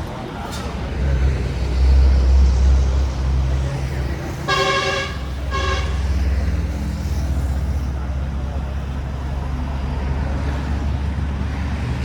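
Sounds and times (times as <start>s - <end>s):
low engine rumble: 0.0s - 12.0s
vehicle horn beeping: 4.4s - 6.2s.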